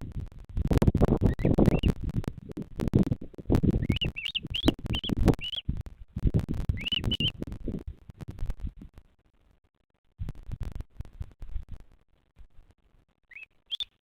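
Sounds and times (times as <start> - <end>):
wind buffeting microphone: 0.0 - 9.0
bird chirping: 1.2 - 2.0, 3.6 - 5.7, 6.7 - 7.4, 13.3 - 14.0.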